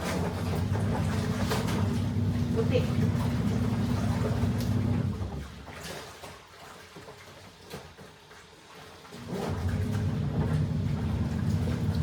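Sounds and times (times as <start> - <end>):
washing machine motor humming: 0.0 - 5.6, 9.2 - 12.0
water sloshing in tub: 0.0 - 12.0.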